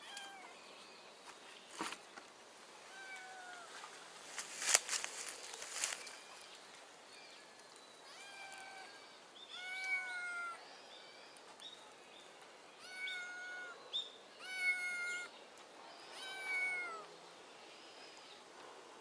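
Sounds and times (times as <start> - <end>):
kitten meowing: 9.5 - 10.6, 12.8 - 13.8, 14.4 - 15.3, 16.2 - 17.1.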